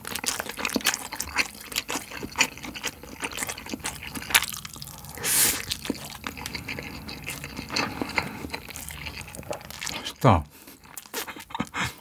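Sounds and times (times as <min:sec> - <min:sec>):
wet chewing: 0:00.0 - 0:12.0.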